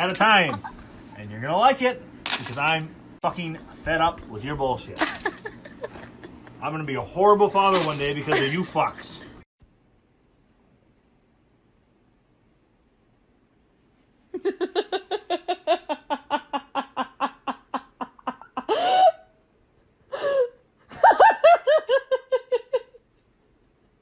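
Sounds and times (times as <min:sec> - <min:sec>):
person laughing hard: 0:05.0 - 0:06.6, 0:14.4 - 0:19.3, 0:20.1 - 0:23.1.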